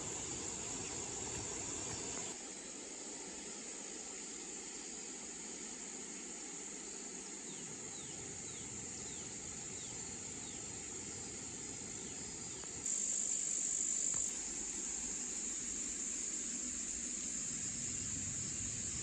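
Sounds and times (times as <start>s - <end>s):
insects shrilling: 0.0s - 2.4s, 7.5s - 19.0s
running stream water: 0.0s - 19.0s.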